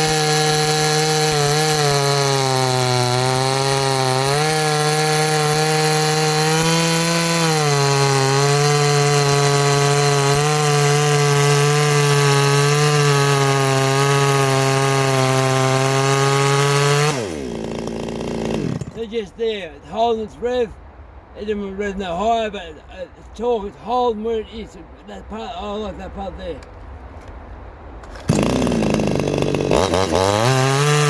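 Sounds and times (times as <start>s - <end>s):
chainsaw running at full revs: 0.0s - 19.0s, 28.2s - 31.0s.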